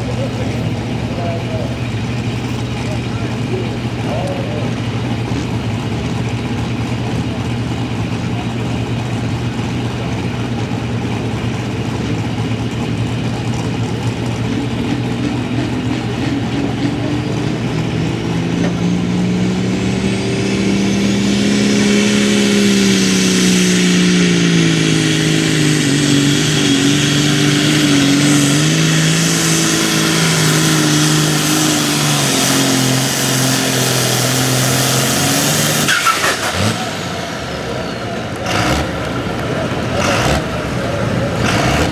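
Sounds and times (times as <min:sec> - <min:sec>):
diesel tractor engine under load: 0:00.0 - 0:41.9
high turbo whistle: 0:19.0 - 0:38.9
sharp crack: 0:21.0 - 0:41.9.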